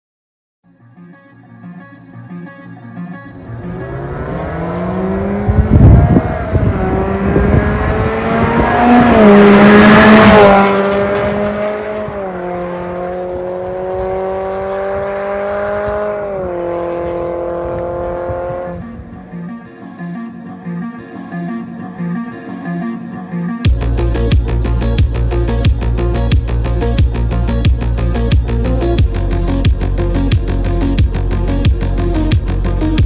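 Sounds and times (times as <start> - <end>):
car engine accelerating: 3.2 - 18.8
exhaust crackles: 3.3 - 12.2.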